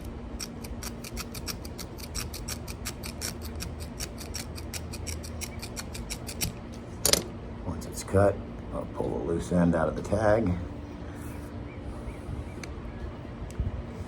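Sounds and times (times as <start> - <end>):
scissors snipping rope: 0.0 - 7.2.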